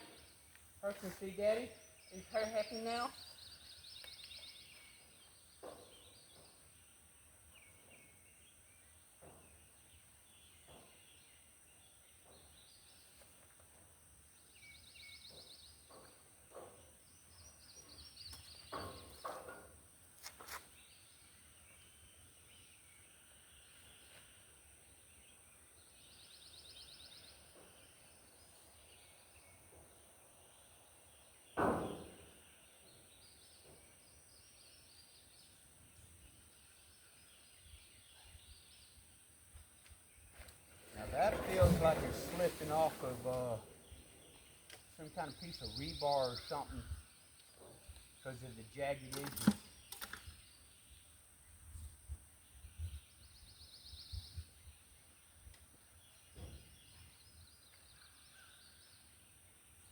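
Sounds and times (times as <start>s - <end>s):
faint birdsong trills: 0.0s - 59.9s
loud thump: 31.6s - 32.2s.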